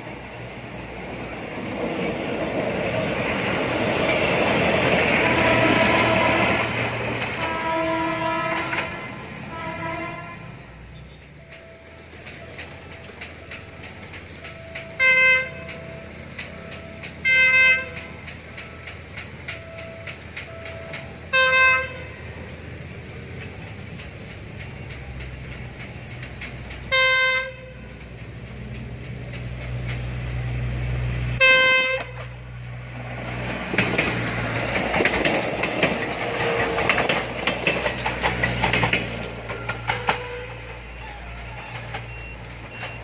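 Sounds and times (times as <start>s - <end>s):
wheels clattering over rail joints: 0.0s - 9.1s, 11.0s - 43.0s
diesel engine hum: 0.0s - 43.0s
diesel train horn blasts: 4.7s - 11.2s, 14.9s - 15.9s, 17.2s - 18.2s, 21.3s - 22.5s, 26.9s - 28.1s, 31.3s - 32.5s, 39.8s - 41.7s.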